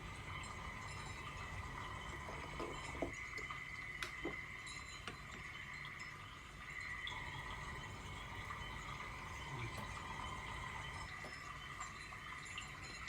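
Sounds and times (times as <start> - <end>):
faint chime tones: 0.0 - 3.1, 4.6 - 13.0.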